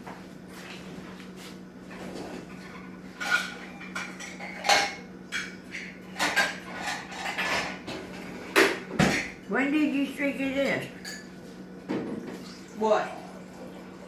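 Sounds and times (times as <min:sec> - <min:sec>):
dishes and cutlery clinking: 0:01.9 - 0:09.6, 0:10.8 - 0:12.4.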